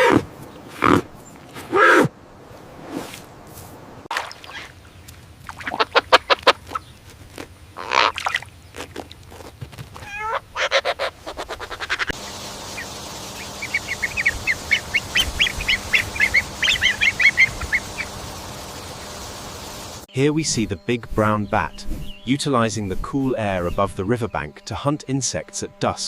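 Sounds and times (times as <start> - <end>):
waterfowl calling: 4.2 - 7.0, 7.8 - 8.4, 10.0 - 20.0.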